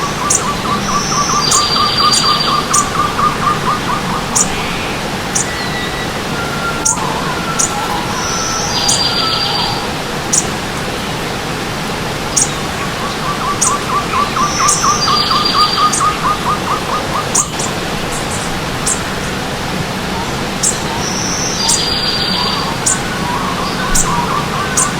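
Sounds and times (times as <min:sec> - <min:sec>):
bird chirps: 0:00.0 - 0:10.5, 0:12.4 - 0:19.4, 0:20.1 - 0:24.9
buzzy bird trills: 0:00.0 - 0:10.6, 0:12.3 - 0:24.9
fast repeated bird notes: 0:00.0 - 0:11.2, 0:12.2 - 0:24.9
stream water running: 0:00.0 - 0:24.9.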